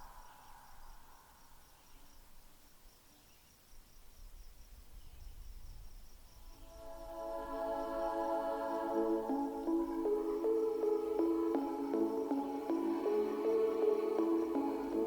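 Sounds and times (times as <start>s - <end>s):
cricket chirping: 0.0s - 15.0s
music: 6.7s - 15.0s.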